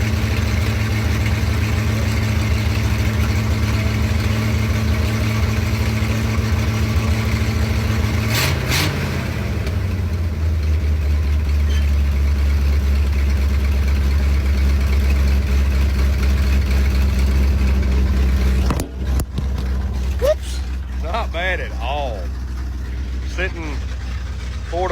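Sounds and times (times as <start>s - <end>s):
truck engine running: 0.0s - 24.9s
short engine knocks: 16.5s - 24.9s.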